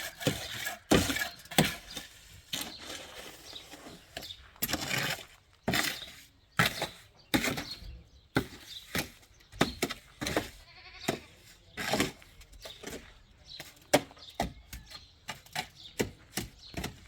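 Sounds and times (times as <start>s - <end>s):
short knocks and scrapes: 0.0s - 17.0s
sheep or goats bleating: 10.5s - 11.4s.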